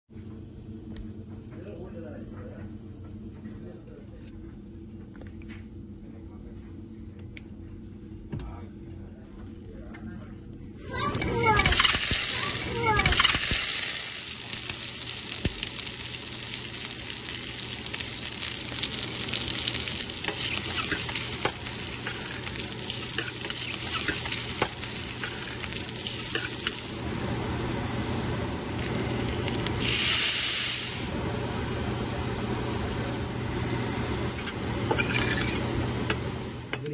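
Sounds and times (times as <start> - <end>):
eggs sizzling in hot oil: 11.3 - 36.6
spoon stirring in a pan: 18.3 - 26.8, 34.4 - 36.3.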